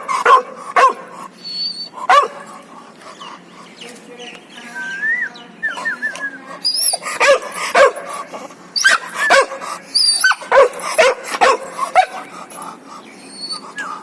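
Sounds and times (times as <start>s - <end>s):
dog barking and yipping: 0.0s - 2.6s, 6.7s - 8.2s, 8.8s - 12.6s.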